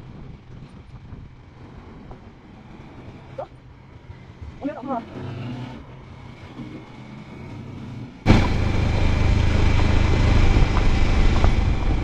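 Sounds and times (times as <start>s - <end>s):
rushing road noise: 0.0s - 12.0s
motorcycle engine running: 8.3s - 12.0s.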